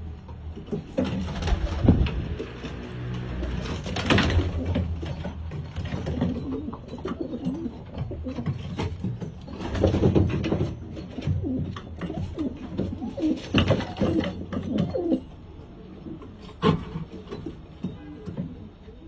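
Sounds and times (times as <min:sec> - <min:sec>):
pigeons cooing: 0:06.0 - 0:08.7, 0:10.8 - 0:16.8.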